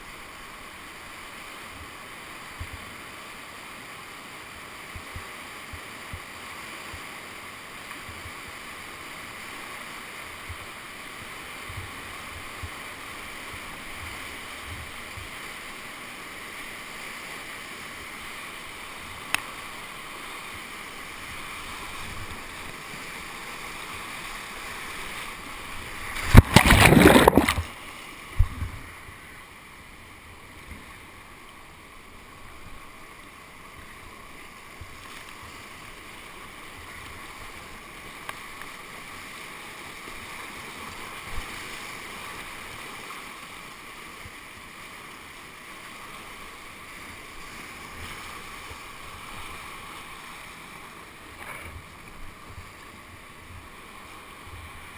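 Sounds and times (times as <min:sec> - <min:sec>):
whitewater rushing: 0:00.0 - 0:54.9
loud splashing: 0:26.1 - 0:27.8.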